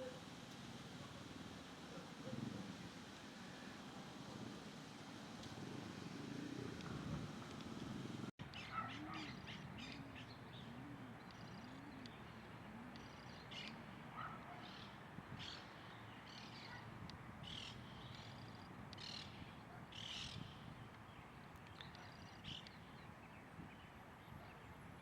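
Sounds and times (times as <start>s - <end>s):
birds chirping: 5.8s - 24.6s.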